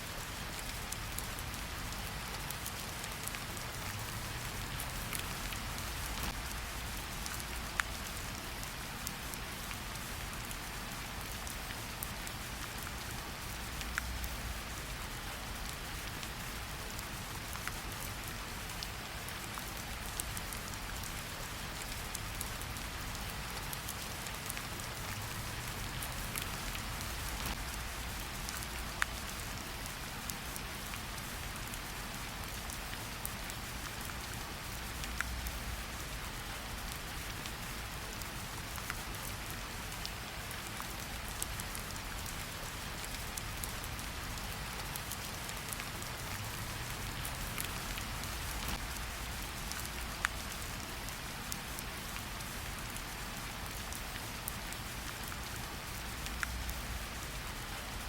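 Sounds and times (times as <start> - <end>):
rain falling on a surface: 0.0 - 58.0
light ticks: 56.2 - 56.6.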